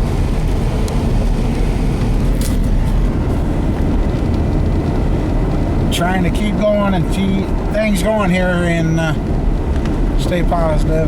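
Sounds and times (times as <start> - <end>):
low rumble inside car cabin: 0.0 - 11.0.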